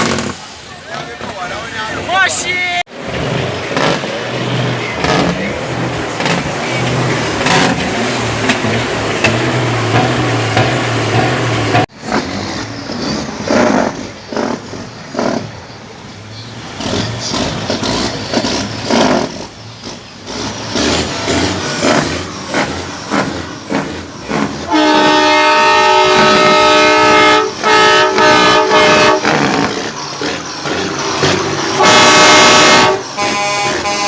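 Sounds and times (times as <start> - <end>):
crowd noise: 0.0 - 34.0
vehicles: 0.0 - 34.0
air horn blasting a chord: 24.7 - 29.4, 31.8 - 34.0.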